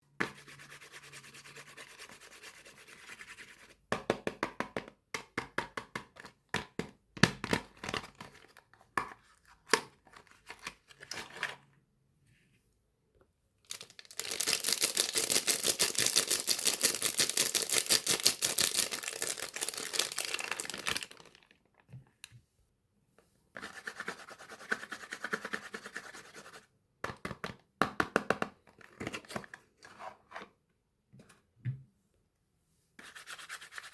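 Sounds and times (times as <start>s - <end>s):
packaging crinkling and tearing: 13.7s - 21.8s.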